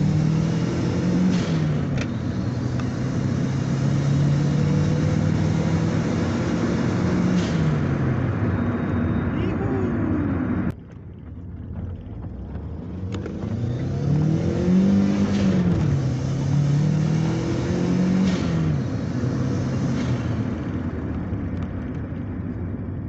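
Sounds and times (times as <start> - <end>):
car engine revving: 0.0 - 22.1.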